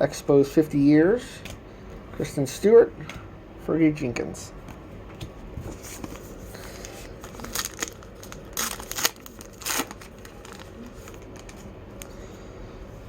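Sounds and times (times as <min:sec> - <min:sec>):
card pack wrapper crinkling and tearing: 0:06.6 - 0:12.1.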